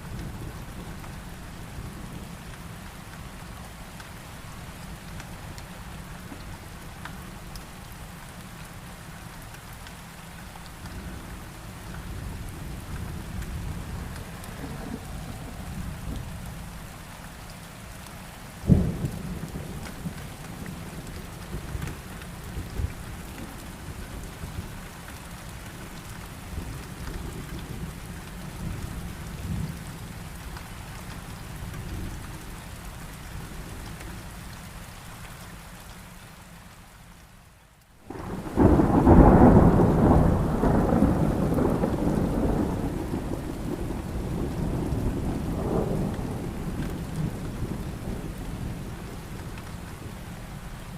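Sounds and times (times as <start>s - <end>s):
heavy rain: 0.0s - 50.9s
thunder rumbling: 12.1s - 17.1s, 38.1s - 50.4s
loud thunderclap: 38.1s - 48.8s.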